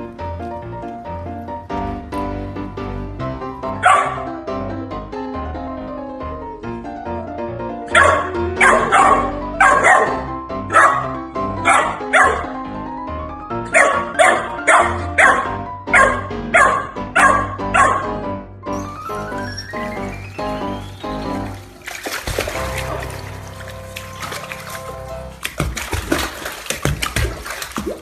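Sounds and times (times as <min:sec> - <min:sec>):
background music: 0:00.0 - 0:28.0
puppy barking: 0:03.8 - 0:04.4, 0:07.9 - 0:12.6, 0:13.7 - 0:18.2.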